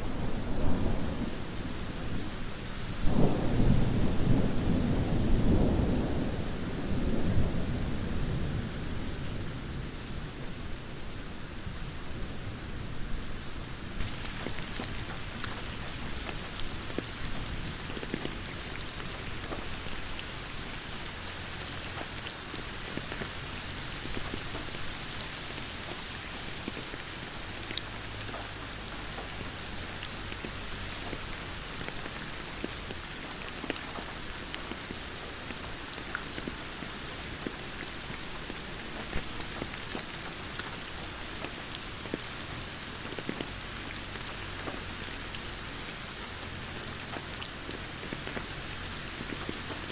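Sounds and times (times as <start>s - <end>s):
steady rain hiss: 0.0s - 49.9s
raindrops ticking on a surface: 14.0s - 49.9s.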